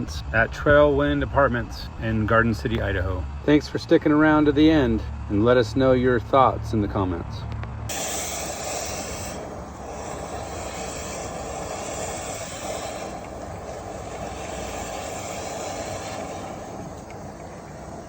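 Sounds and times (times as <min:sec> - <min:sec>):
vent cleaning machine rushing: 0:07.9 - 0:18.0.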